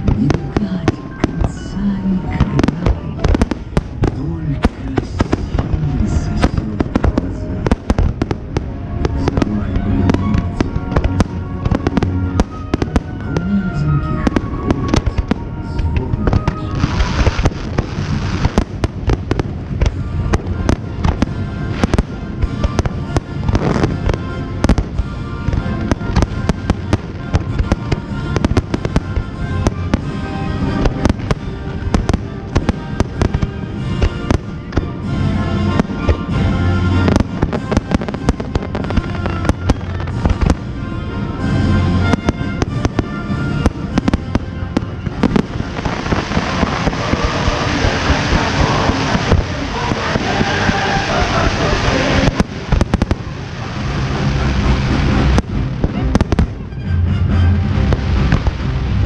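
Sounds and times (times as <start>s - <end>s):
hissing firework fountains: 0.0s - 56.8s, 57.4s - 59.0s
fireworks bursting and crackling: 0.0s - 59.0s
music soundtrack: 0.0s - 59.0s.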